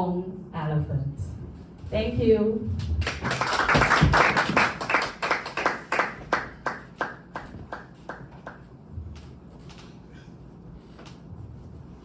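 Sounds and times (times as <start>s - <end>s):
audience applauding: 3.0s - 8.6s.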